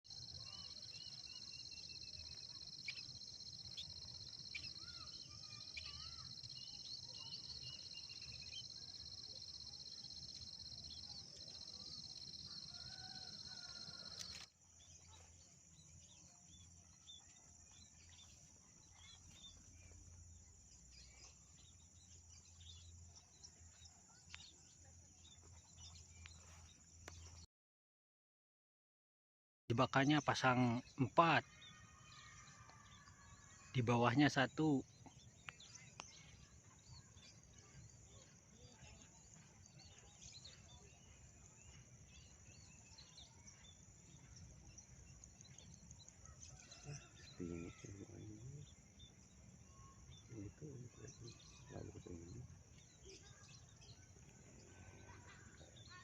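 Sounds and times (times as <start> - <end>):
insects droning: 0.1 - 14.5, 29.7 - 56.0
small birds chirping: 0.1 - 27.5, 29.7 - 56.0.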